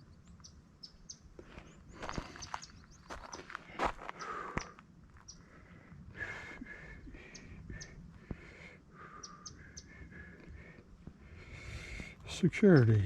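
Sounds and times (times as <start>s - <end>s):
birds chirping and calling: 0.0s - 13.0s.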